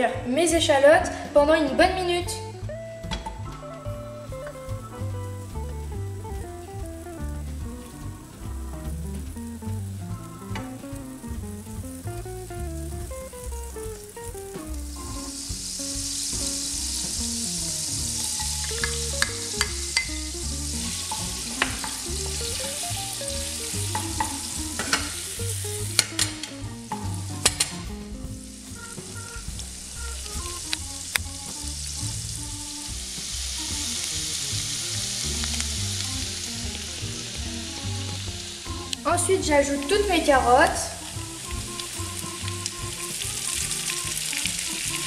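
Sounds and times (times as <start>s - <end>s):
shallots sizzling in butter: 1.9s - 45.0s
spatula knocking the pan: 17.8s - 25.3s.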